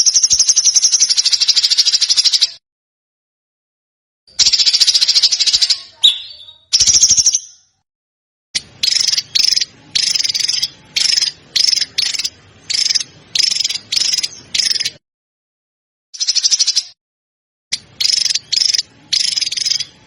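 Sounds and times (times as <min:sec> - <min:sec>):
songbird rattling trills: 0:04.4 - 0:07.6, 0:08.6 - 0:15.0, 0:17.8 - 0:20.0
songbird chattering bursts: 0:08.6 - 0:15.0, 0:18.0 - 0:20.0.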